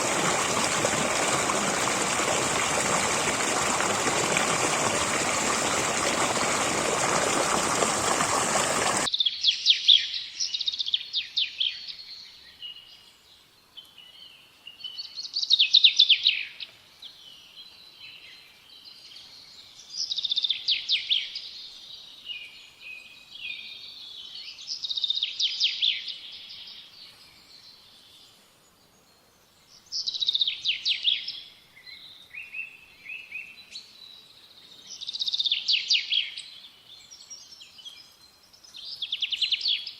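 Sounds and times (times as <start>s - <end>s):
rushing stream water: 0.0s - 9.1s
songbird singing: 0.0s - 39.9s.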